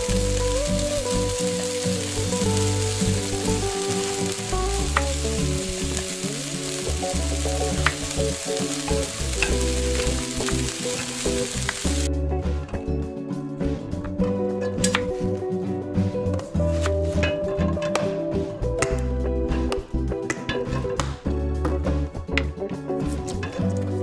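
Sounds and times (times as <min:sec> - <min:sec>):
food sizzling in a pan: 0:00.0 - 0:12.1
background music: 0:00.0 - 0:24.0.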